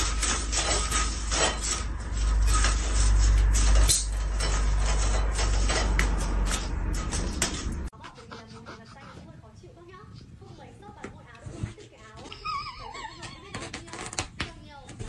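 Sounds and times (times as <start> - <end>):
venetian blind slats rattling: 0.0 - 7.9
steady low rumble: 1.8 - 8.0.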